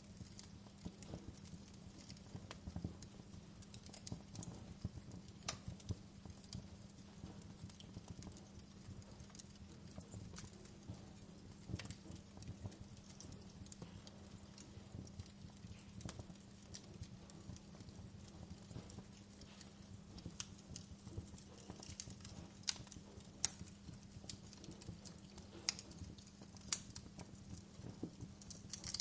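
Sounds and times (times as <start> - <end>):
fire popping and snapping: 0.0 - 29.0
low fire rumble: 0.0 - 29.0.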